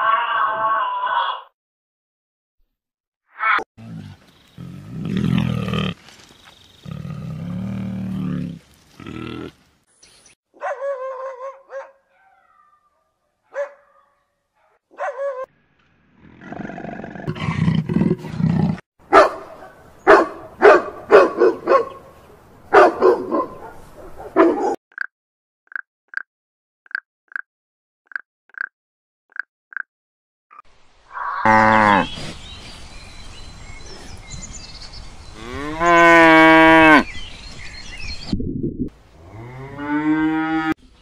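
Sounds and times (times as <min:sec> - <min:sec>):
bear growling deeply: 0:03.8 - 0:06.0, 0:06.8 - 0:09.6, 0:16.1 - 0:18.8.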